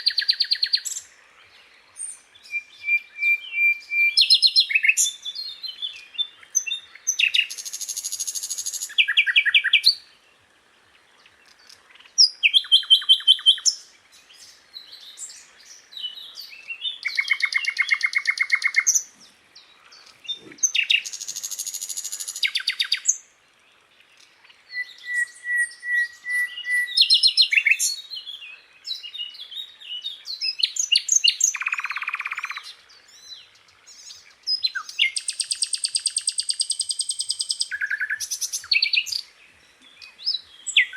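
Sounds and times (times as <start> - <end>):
flycatcher singing: 30.3 - 32.7.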